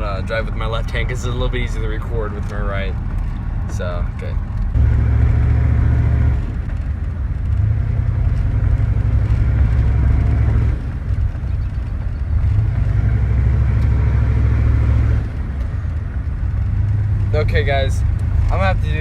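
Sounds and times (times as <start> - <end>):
diesel truck engine drone: 0.0 - 19.0.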